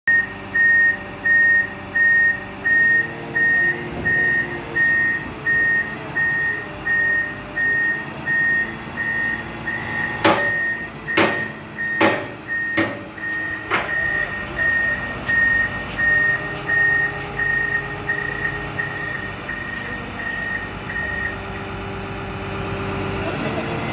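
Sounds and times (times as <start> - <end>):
backup alarm beeping: 0.1 - 21.5
engine humming: 0.1 - 23.9
metal clanks: 10.2 - 14.1.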